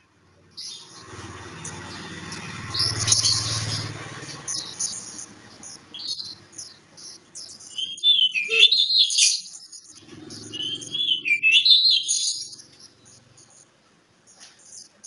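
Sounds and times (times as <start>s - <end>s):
bird singing warbling whistles: 7.4s - 12.7s.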